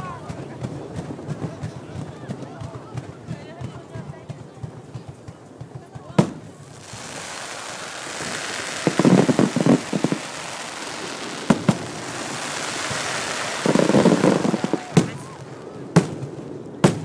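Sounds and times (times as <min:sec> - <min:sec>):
fireworks crackling hiss: 0:05.0 - 0:17.0
firecracker pops: 0:06.2 - 0:17.0.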